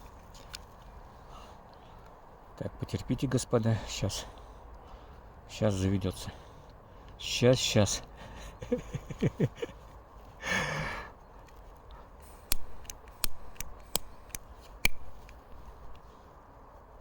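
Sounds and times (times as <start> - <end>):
person sighing: 10.4 - 11.1
gas lighter clicking: 12.5 - 15.4.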